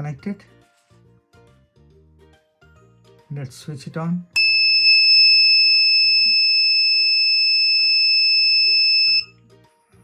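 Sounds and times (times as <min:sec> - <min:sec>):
high loud buzzer beep: 0:04.4 - 0:09.2.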